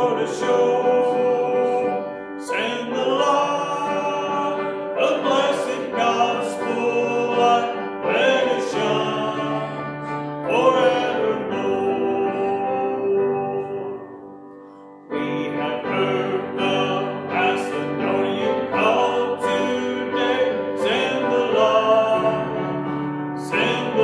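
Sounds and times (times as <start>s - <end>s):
congregation singing a hymn: 0.0s - 24.0s.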